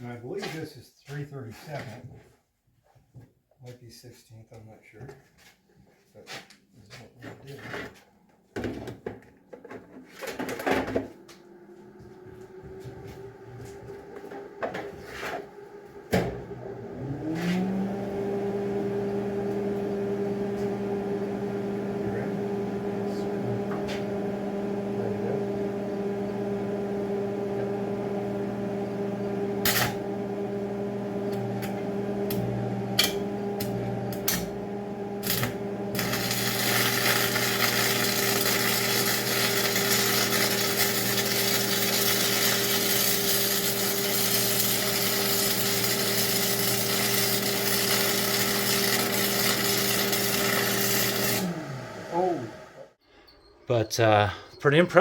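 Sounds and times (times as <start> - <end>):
welder cooling fan hum: 10.5 - 53.0
welding arc crackling hiss: 29.6 - 30.0, 35.2 - 51.4.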